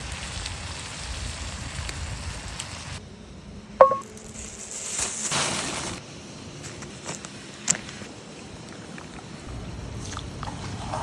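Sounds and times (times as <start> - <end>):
fire crackling: 0.0 - 3.4
sharp metallic clink: 3.8 - 4.0.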